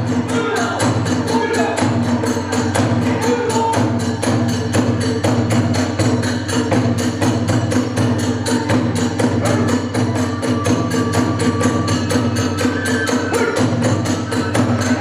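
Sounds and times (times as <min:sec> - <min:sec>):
drums and hand cymbals: 0:00.0 - 0:15.0
held flute line: 0:09.4 - 0:15.0.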